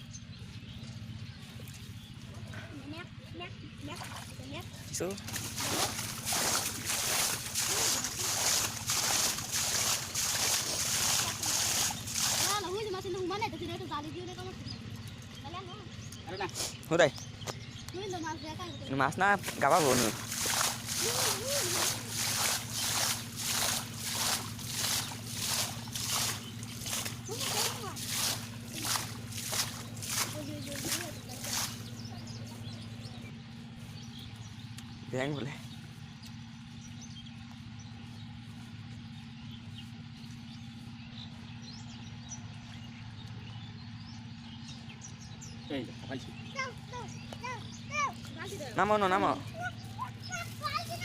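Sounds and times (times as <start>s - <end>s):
water sloshing: 0.5s - 16.3s, 18.0s - 45.4s, 46.2s - 51.0s
high bird chirps: 5.6s - 51.0s
low hum: 17.1s - 48.8s.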